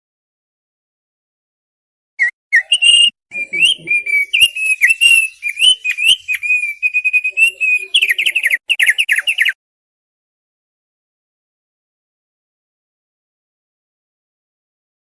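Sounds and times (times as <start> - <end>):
bird warbling whistled notes: 2.2 - 9.6.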